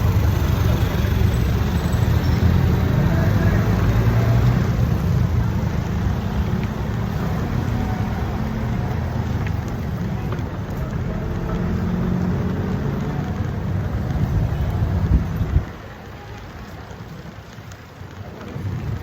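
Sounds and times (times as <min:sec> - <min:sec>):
road traffic rumble: 0:00.0 - 0:19.0
wind on microphone: 0:14.0 - 0:15.7.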